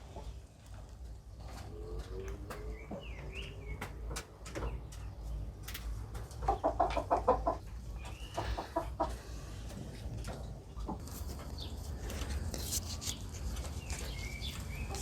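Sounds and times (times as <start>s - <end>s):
hen clucking: 0.0s - 12.5s, 13.2s - 15.0s
small bird chirps: 12.8s - 15.0s.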